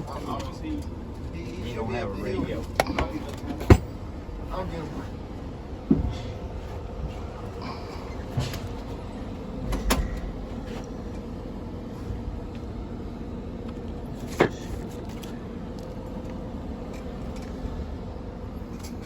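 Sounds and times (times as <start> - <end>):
low machinery hum: 0.0 - 19.0.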